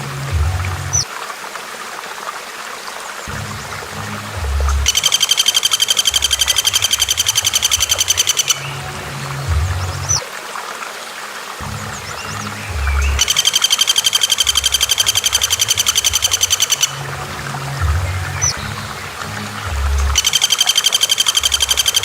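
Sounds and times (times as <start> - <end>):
running water: 0.0 - 22.0
bird chirp: 3.3 - 10.2, 11.6 - 17.0, 17.7 - 22.0
bird trilling: 4.8 - 8.8, 9.6 - 10.2, 11.9 - 17.0, 20.0 - 22.0.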